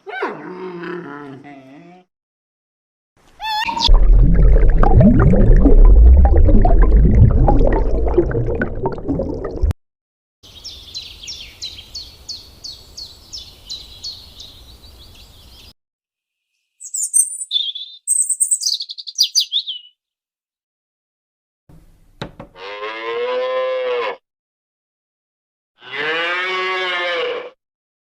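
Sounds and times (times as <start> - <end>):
loud low noise: 3.9 - 8.2
small birds chirping: 10.5 - 15.7, 16.5 - 20.0.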